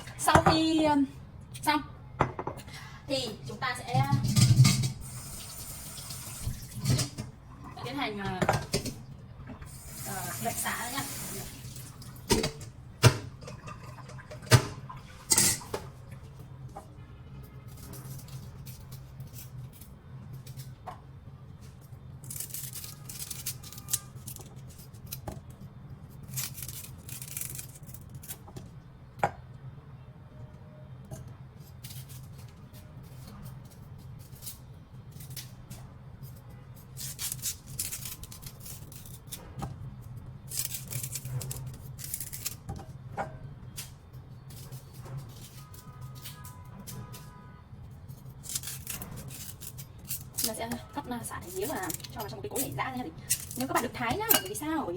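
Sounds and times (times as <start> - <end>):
stalks rustling and being cut: 40.5 - 42.7, 48.1 - 53.9.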